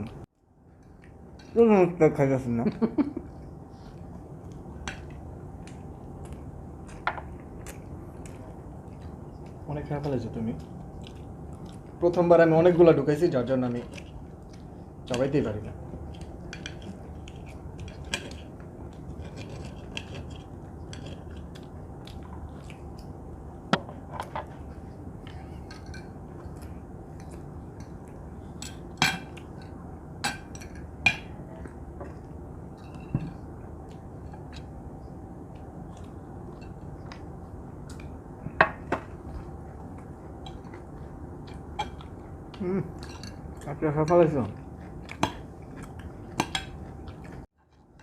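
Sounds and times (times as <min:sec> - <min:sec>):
low background hum: 0:00.0 - 0:48.0.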